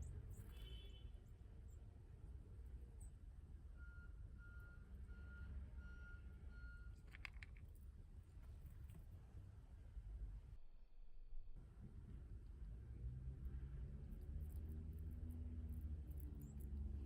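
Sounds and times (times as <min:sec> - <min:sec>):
vehicle reversing alarm beeps: 0:03.7 - 0:07.0.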